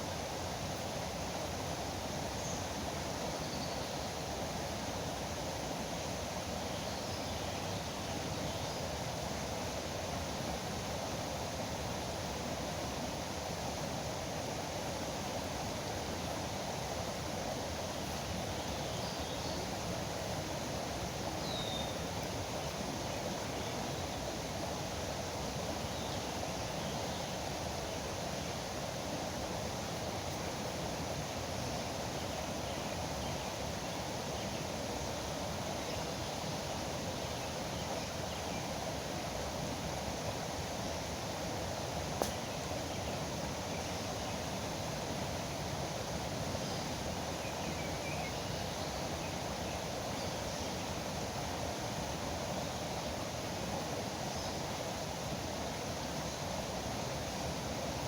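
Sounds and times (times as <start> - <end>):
faint bird chirps: 21.4 - 22.8.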